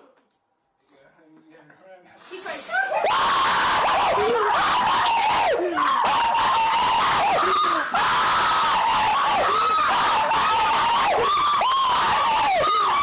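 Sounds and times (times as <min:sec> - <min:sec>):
fireworks crackling hiss: 0:02.2 - 0:03.1.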